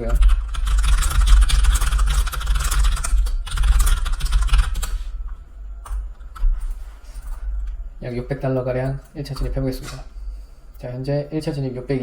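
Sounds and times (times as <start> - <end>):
fast typing on keyboard: 0.0 - 5.0.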